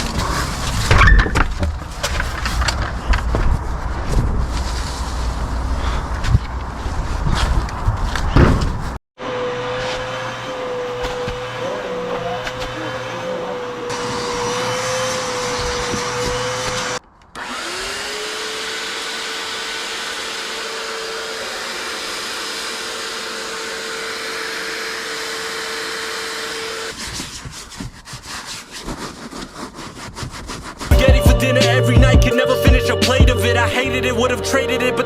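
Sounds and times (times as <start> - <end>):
vacuum cleaner running: 9.2 - 26.9.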